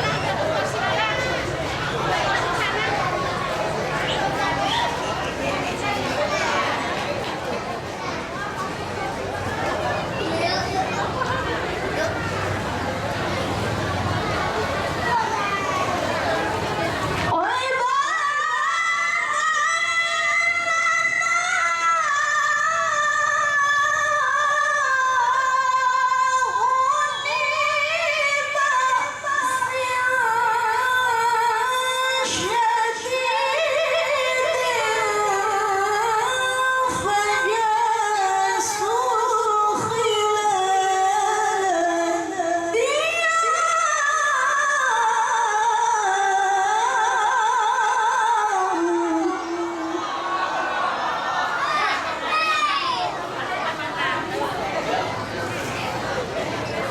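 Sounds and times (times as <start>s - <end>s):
woman chanting melodically: 15.9s - 50.3s.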